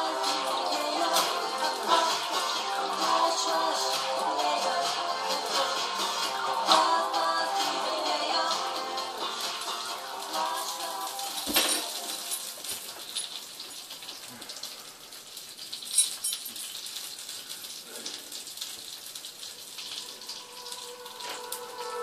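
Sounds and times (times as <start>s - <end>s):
music: 0.0s - 13.2s, 19.8s - 22.0s
recorded rain pattering: 0.0s - 22.0s.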